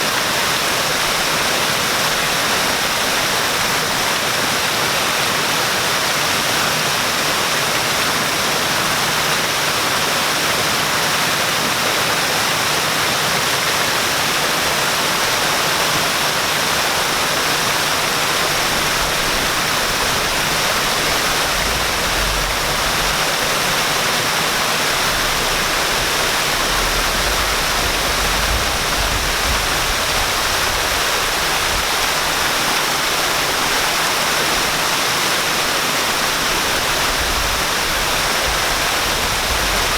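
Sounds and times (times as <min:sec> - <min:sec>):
waterfall pouring: 0:00.0 - 0:39.9
faint low rumble: 0:21.2 - 0:23.9.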